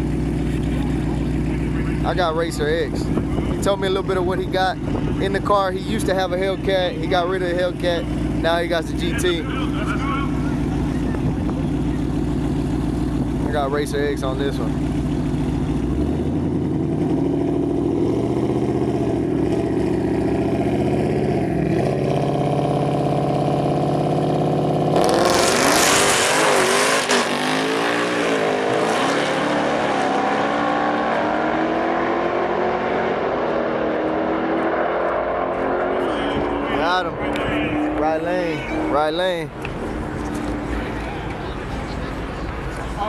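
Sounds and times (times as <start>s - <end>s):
drag racing cars launching: 24.9s - 43.0s.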